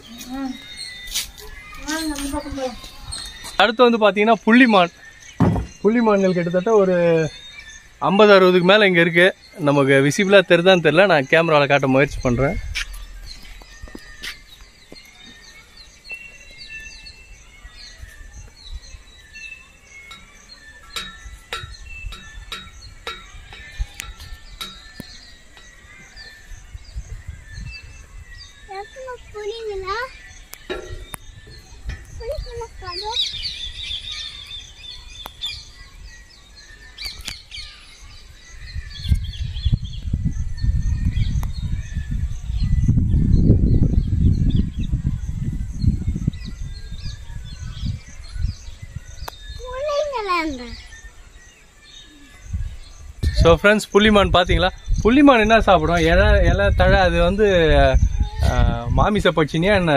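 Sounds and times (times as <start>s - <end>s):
birds chirping: 0.0s - 59.9s
low rumbling noise: 11.9s - 16.0s.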